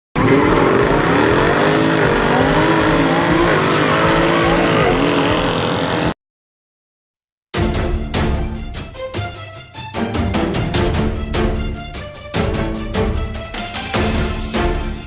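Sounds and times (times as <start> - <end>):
car engine accelerating through gears: 0.2 - 6.2.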